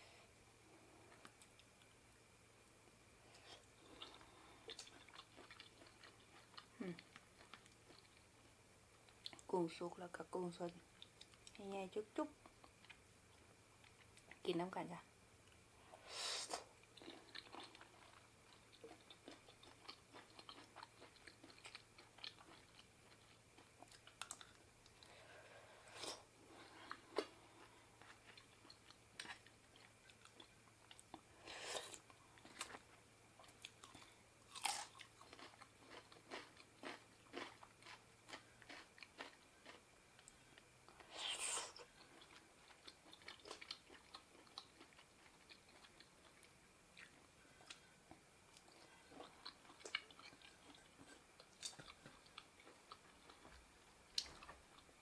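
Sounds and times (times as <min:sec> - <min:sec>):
person chewing and crunching: 0:03.4 - 0:08.4, 0:12.4 - 0:13.0, 0:13.8 - 0:14.4, 0:16.8 - 0:25.1, 0:26.0 - 0:55.0.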